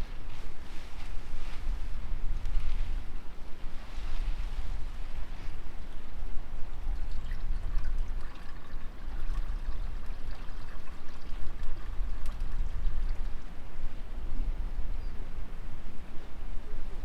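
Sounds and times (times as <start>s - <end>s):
wind rumbling on microphone: 0.0s - 17.0s
water trickling and splashing: 6.7s - 13.6s.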